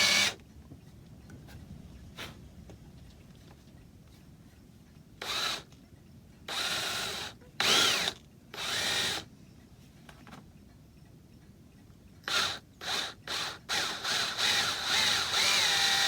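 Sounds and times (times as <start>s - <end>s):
electric drill boring wood: 0.0s - 0.4s, 6.5s - 9.2s, 12.3s - 16.0s.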